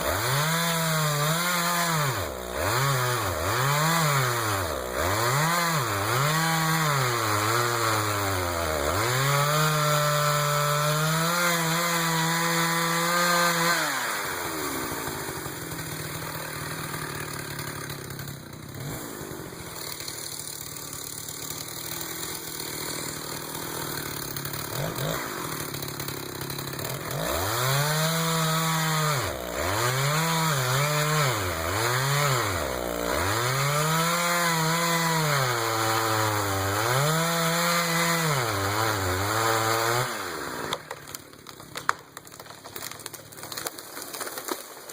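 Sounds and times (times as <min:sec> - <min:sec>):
chainsaw revving while cutting: 0:00.0 - 0:41.2.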